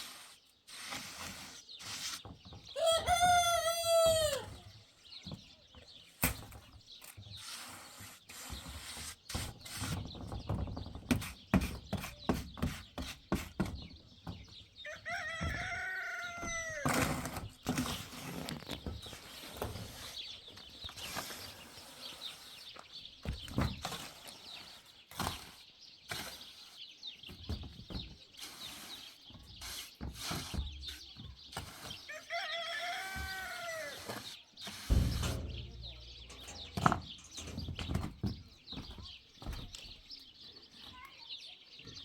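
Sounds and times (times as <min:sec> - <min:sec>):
rooster crowing: 0:02.8 - 0:04.5, 0:14.9 - 0:16.8, 0:32.1 - 0:34.1
knocks and clicks: 0:34.9 - 0:39.9.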